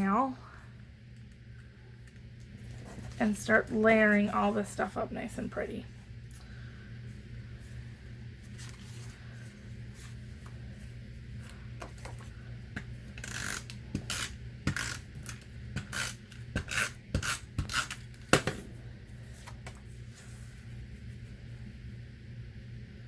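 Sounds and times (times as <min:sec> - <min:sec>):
tape runner rasping on card: 0:13.2 - 0:18.0.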